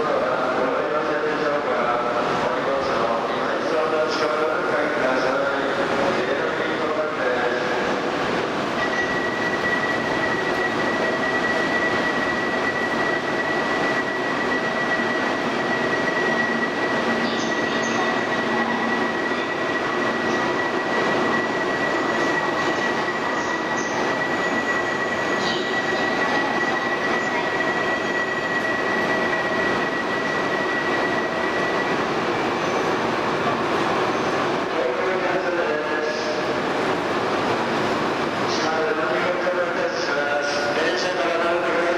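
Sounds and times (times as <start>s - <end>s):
train running: 0.0s - 41.9s.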